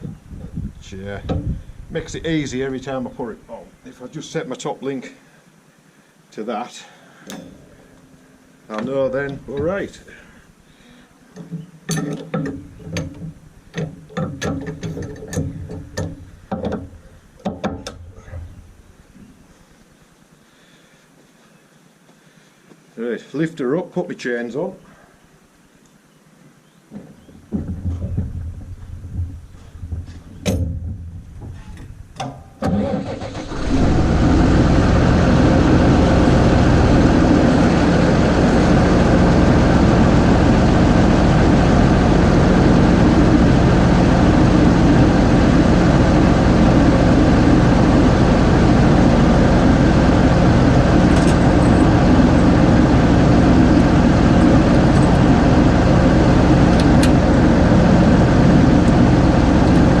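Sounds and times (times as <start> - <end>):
metallic clanks: 7.2 - 9.8, 11.4 - 18.6
tractor diesel engine running: 7.3 - 10.2, 32.7 - 60.0.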